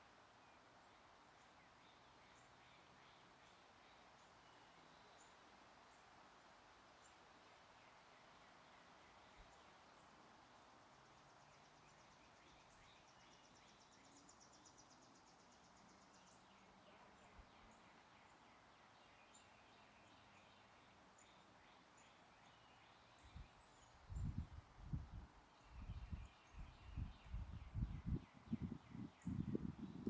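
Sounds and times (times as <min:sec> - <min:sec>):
faint birdsong: 0:00.0 - 0:06.1, 0:06.9 - 0:30.0
background hiss: 0:00.0 - 0:30.0
wind gusts on microphone: 0:24.0 - 0:30.0.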